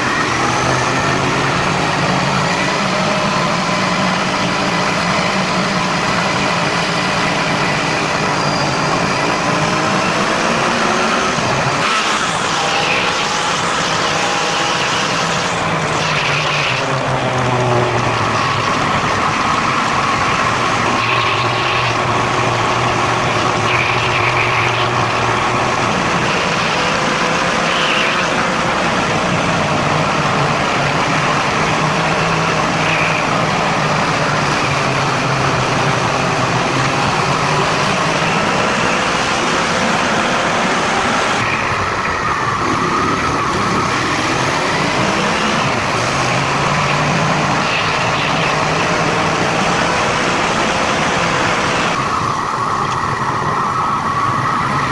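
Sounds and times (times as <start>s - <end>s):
car engine: 0.0s - 54.9s
road noise: 0.0s - 54.9s.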